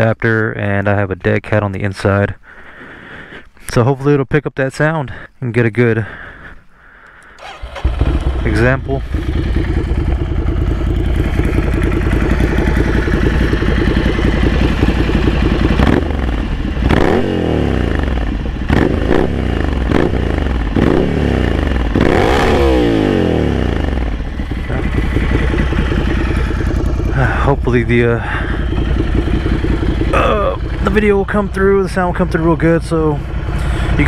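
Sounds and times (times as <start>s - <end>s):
motorcycle engine idling and revving: 7.4s - 34.0s.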